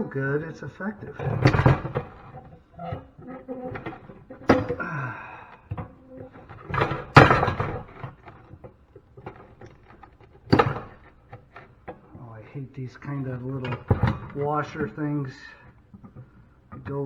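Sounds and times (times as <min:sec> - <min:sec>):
metal clanking: 0:00.0 - 0:12.3
small knocks and rattles: 0:00.0 - 0:17.0.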